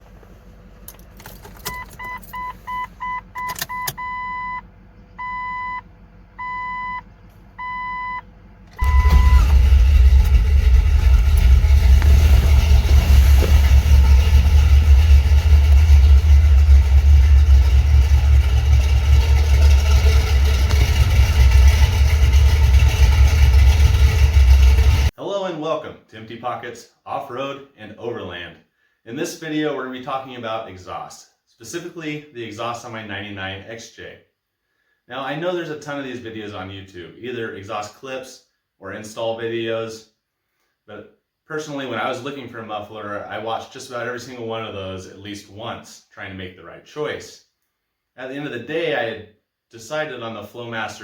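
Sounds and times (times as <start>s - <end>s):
engine starting and idling: 0.0s - 25.1s
dashboard chime beeps: 1.7s - 4.6s, 5.2s - 5.8s, 6.4s - 7.0s, 7.6s - 8.2s, 8.8s - 9.5s.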